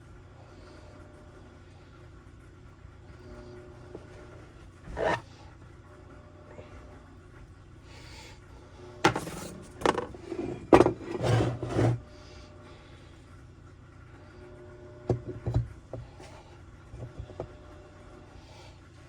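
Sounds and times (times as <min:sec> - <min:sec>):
rubbing and scraping: 0:04.0 - 0:05.3, 0:09.1 - 0:12.0.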